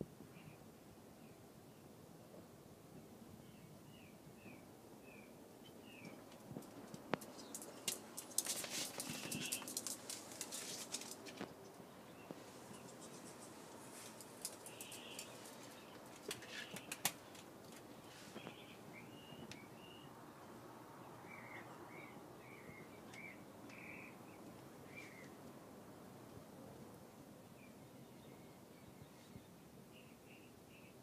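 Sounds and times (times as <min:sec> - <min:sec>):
sharp clicks: 0:16.3 - 0:17.4.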